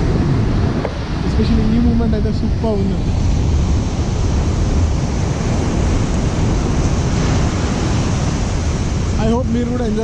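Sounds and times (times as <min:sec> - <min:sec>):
sea surf washing on beach: 0:00.0 - 0:10.0
wind buffeting microphone: 0:00.0 - 0:10.0.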